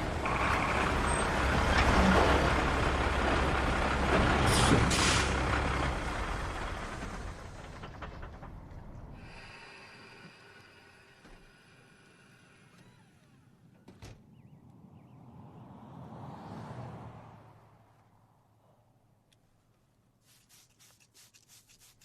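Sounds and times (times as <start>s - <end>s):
truck rumbling: 0.0s - 18.5s
air brakes hissing: 4.5s - 5.4s, 9.2s - 12.7s.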